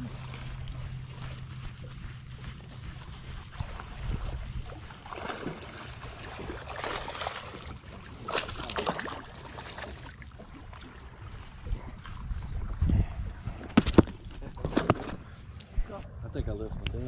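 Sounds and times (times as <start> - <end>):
steady low rumble: 0.0 - 8.3, 10.2 - 14.6, 15.2 - 17.0
water splashing around boat: 0.0 - 12.8.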